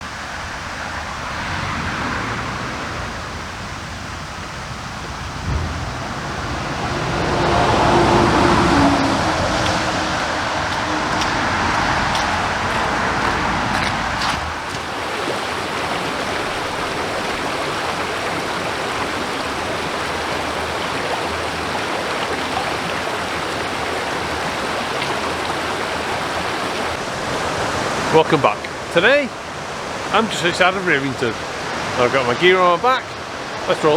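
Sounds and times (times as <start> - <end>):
deep water rumble: 0.0 - 33.9
stream and waterfall rushing: 0.0 - 33.9.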